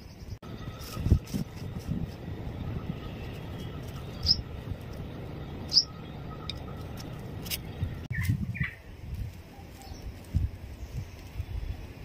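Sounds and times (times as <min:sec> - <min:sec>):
birds chirping: 0:00.0 - 0:08.9
low background rumble: 0:00.4 - 0:09.4.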